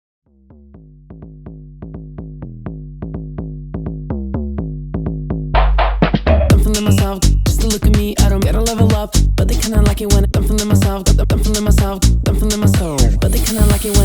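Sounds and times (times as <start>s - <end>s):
bass line: 0.4s - 14.0s
drum machine beat: 5.6s - 14.0s.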